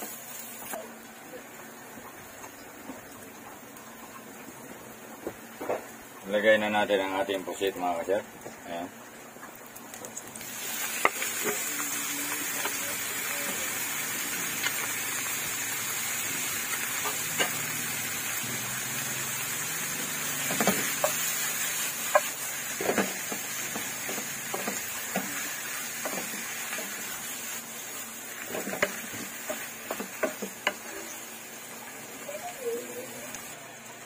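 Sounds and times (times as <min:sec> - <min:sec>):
squid sizzling in hot oil: 0:00.0 - 0:01.0, 0:01.8 - 0:34.0
spatula clacking and scraping pan: 0:20.4 - 0:21.4, 0:22.0 - 0:27.0, 0:28.4 - 0:31.1.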